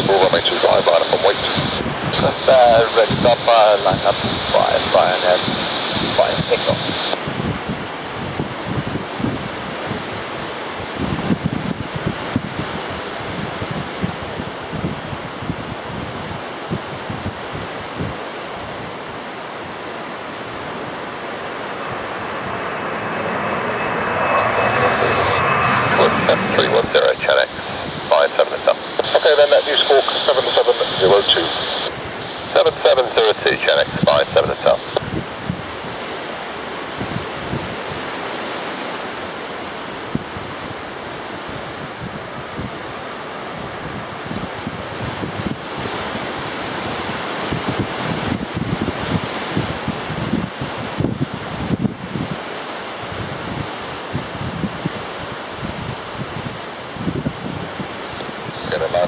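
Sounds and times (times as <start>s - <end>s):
thin whine: 0.0s - 7.2s, 20.0s - 35.0s
strong wind rushing: 0.0s - 36.1s, 39.9s - 59.0s
jet airliner engine: 0.0s - 59.0s.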